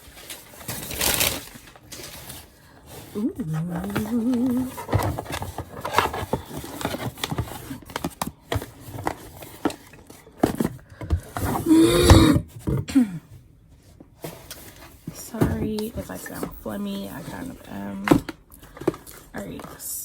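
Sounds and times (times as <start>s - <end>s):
packaging scraping and rustling: 0.0s - 11.7s, 14.0s - 19.9s
person humming: 3.2s - 4.9s, 11.6s - 13.2s
person exclaiming: 11.6s - 12.4s.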